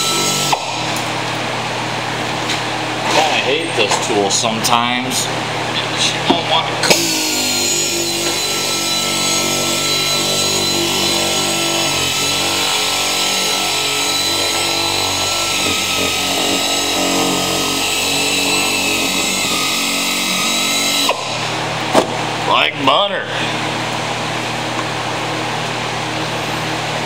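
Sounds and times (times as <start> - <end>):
power tool cutting sheet metal: 0.0 - 1.4, 6.8 - 21.8.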